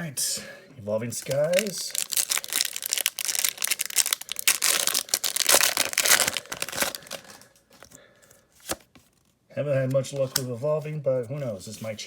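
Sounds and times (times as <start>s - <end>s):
foil wrapper tearing and crinkling: 1.2s - 7.6s.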